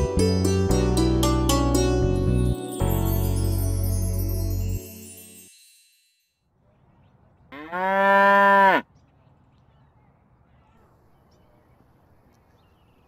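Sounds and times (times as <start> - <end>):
water buffalo mooing: 7.6 - 8.8.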